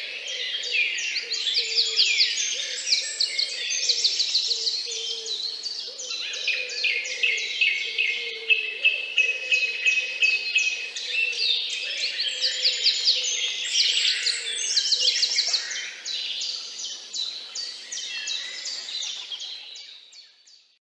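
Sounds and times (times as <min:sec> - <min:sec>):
chorus of small birds chirping: 0:00.0 - 0:20.8.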